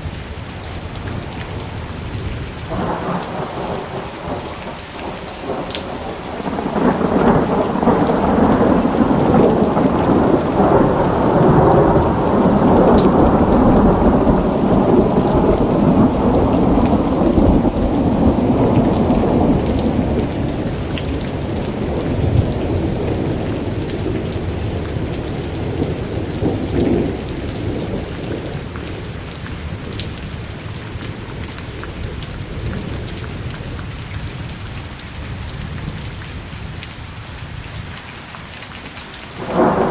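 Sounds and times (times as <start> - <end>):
rain falling: 0.0 - 39.9
rolling thunder: 1.0 - 31.6, 39.4 - 39.9.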